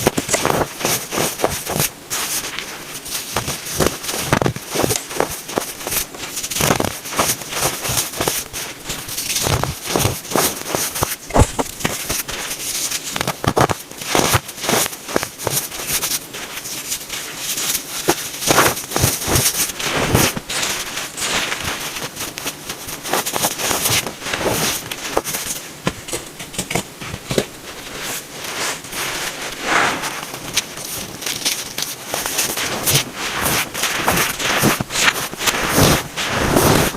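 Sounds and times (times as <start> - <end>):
baking soda crunching by hand: 27.2 - 36.9.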